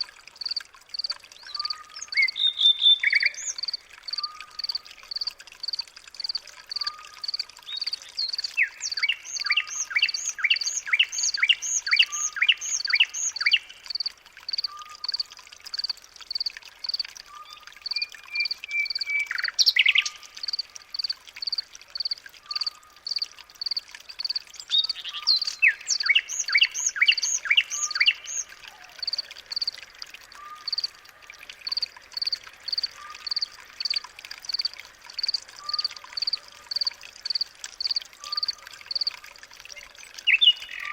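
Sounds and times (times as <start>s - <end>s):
bird singing rapid notes: 22.5s - 29.7s, 40.2s - 40.9s.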